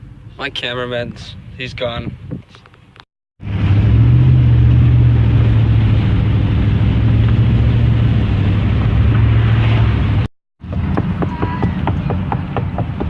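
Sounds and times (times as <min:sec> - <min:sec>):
road and wind rush: 0:00.0 - 0:13.0
truck engine drone: 0:03.4 - 0:13.0.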